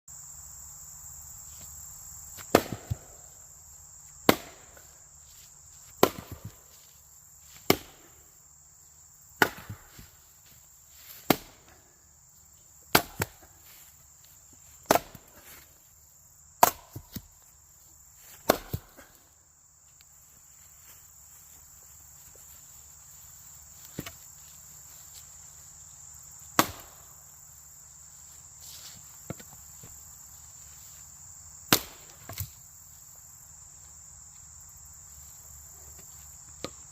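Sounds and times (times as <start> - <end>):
insect chirring: 0.1 - 36.9
axe striking wood: 2.4 - 3.1, 4.3 - 4.8, 6.0 - 6.6, 7.6 - 8.0, 9.4 - 10.0, 11.2 - 11.8, 12.9 - 13.5, 14.8 - 15.3, 16.6 - 17.3, 18.3 - 19.1, 26.6 - 27.0, 31.7 - 32.5.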